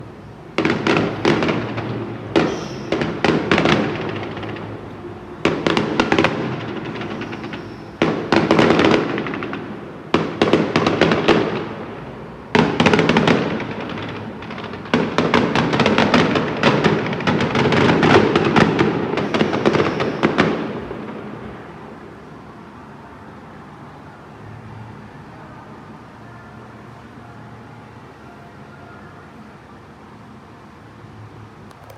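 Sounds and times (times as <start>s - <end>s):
fireworks crackling bangs: 0.5s - 21.4s.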